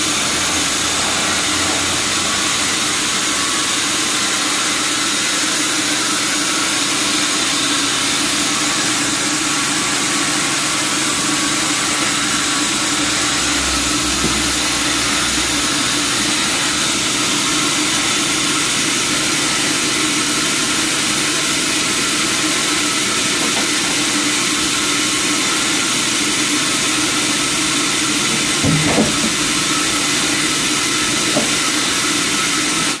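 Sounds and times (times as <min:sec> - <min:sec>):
sawmill machinery hissing: 0:00.0 - 0:33.0
brief knocks: 0:28.3 - 0:29.6.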